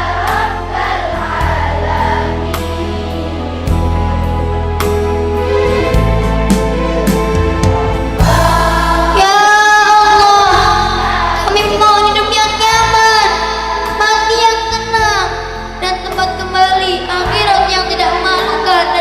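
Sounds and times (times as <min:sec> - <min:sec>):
group of voices singing: 0:00.0 - 0:03.6, 0:07.9 - 0:14.4, 0:17.2 - 0:19.0
instrumental devotional music: 0:00.0 - 0:19.0.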